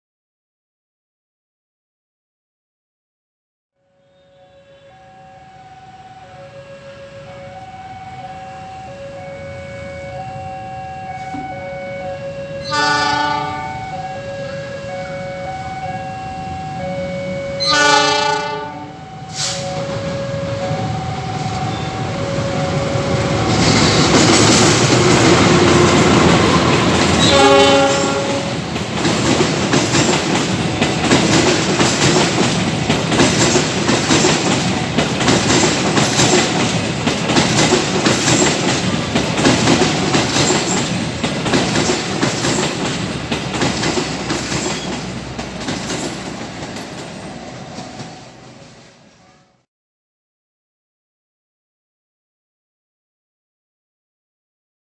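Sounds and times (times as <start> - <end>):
train horn blast: 3.8 - 24.2, 25.3 - 28.7, 49.2 - 49.6
locomotive rumble: 18.5 - 49.2
train wheels clickety-clack: 23.0 - 48.6.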